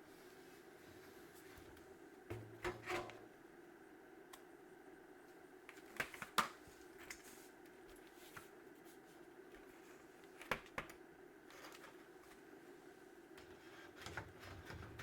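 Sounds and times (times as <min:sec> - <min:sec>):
steady hum: 0:00.0 - 0:05.8.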